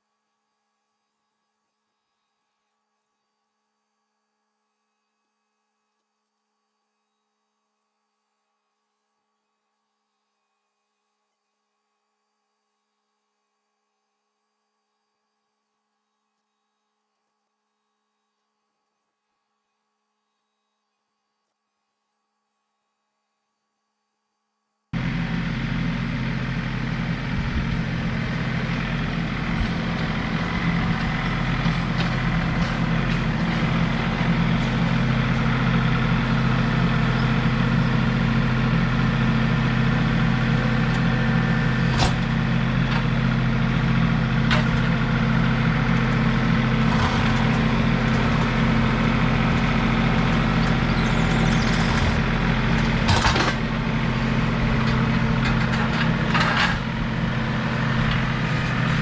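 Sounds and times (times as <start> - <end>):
tractor engine running: 25.0 - 59.0.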